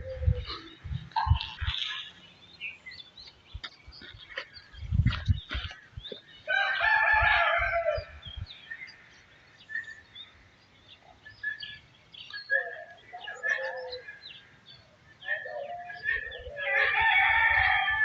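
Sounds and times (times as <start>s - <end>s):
small birds chirping: 0.0s - 18.0s
rooster crowing: 6.5s - 8.1s, 16.6s - 18.0s.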